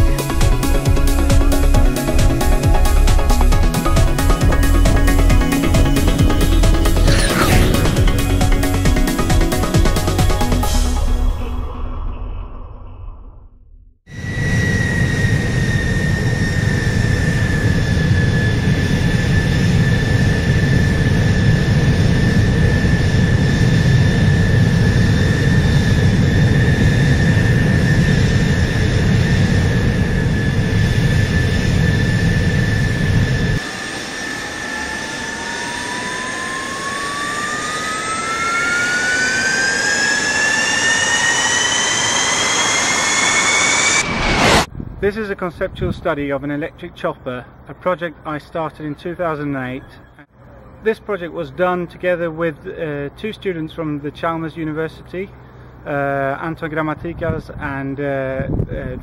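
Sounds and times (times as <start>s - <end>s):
turbine spooling up: 0.0s - 44.7s
jet engine whine: 0.0s - 45.0s, 53.1s - 57.2s
jet engine low rumble: 0.0s - 45.1s, 54.0s - 57.8s.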